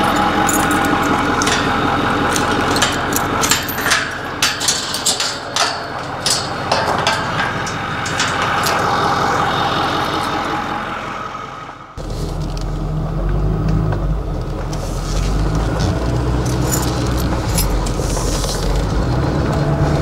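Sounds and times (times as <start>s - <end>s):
sharp rattles and knocks: 0.0s - 9.4s, 15.6s - 19.4s
golf cart engine hum: 0.0s - 20.0s.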